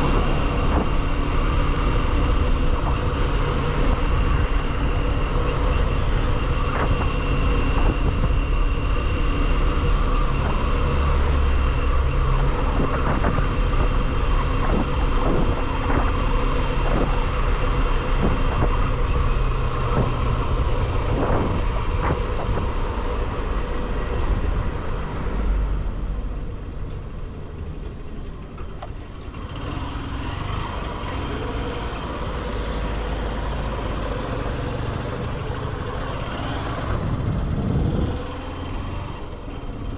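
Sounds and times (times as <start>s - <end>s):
motorcycle engine drone: 0.0s - 39.9s
road traffic: 0.0s - 39.9s
wind rush: 10.2s - 26.2s, 32.2s - 39.9s.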